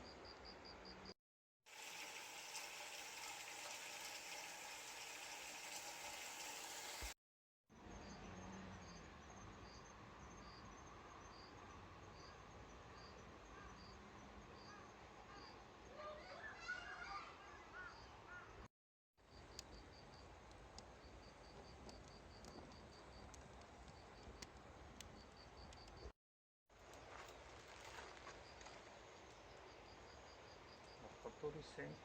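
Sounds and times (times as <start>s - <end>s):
insect chirping: 19.3s - 23.3s, 25.1s - 26.1s, 28.4s - 31.4s.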